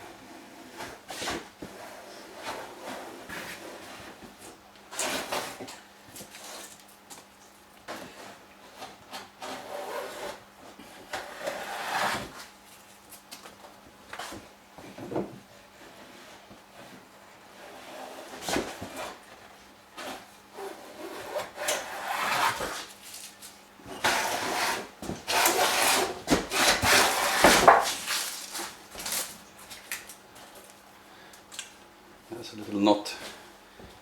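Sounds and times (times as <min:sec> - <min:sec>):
hand plane shaving wood: 0:11.2 - 0:12.3, 0:20.6 - 0:22.9, 0:24.0 - 0:27.9.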